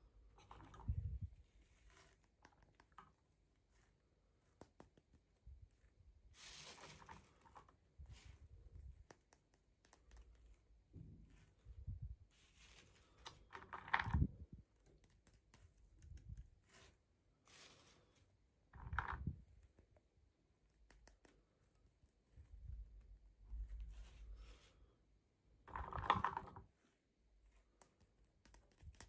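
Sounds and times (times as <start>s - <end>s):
plastic and cardboard crinkling: 5.8s - 8.4s.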